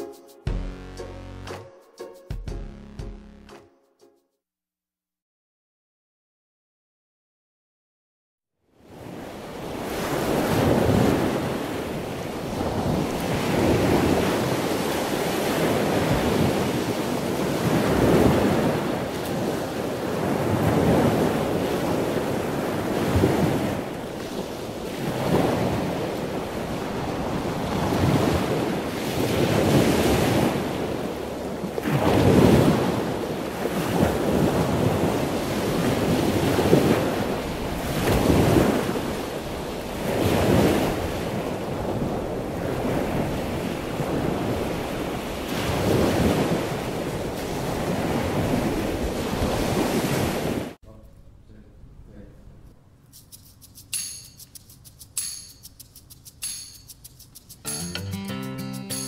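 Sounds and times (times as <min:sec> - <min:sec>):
water rushing past hull: 0:09.4 - 0:50.7
wind buffeting microphone: 0:09.6 - 0:50.6.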